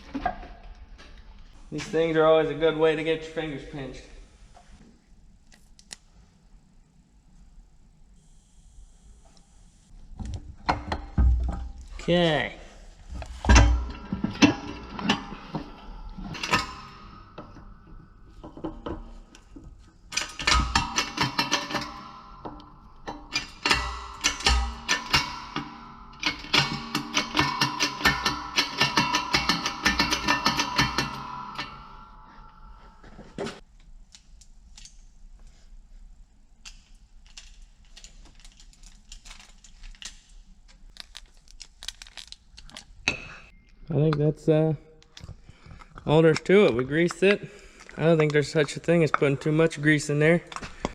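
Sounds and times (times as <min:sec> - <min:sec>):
metal parts clinking and knocking: 0:13.2 - 0:32.8, 0:36.6 - 0:40.3.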